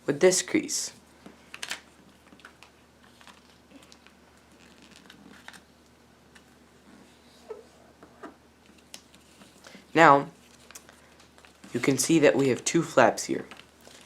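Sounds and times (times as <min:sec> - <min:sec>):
paper crinkling: 0:01.4 - 0:05.7, 0:10.4 - 0:12.6, 0:13.4 - 0:14.0.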